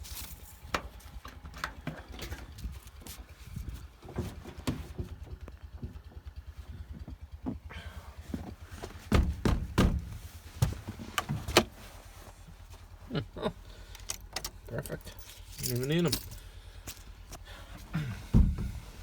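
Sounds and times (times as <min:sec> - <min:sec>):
small tractor engine idling: 0:00.0 - 0:19.0
loud thumps and knocks: 0:09.0 - 0:10.9, 0:18.3 - 0:18.8.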